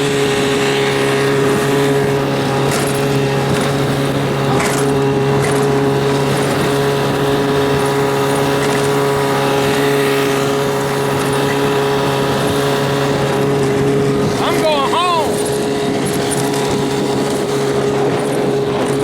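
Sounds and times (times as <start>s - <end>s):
outboard engine running: 0.0s - 19.0s.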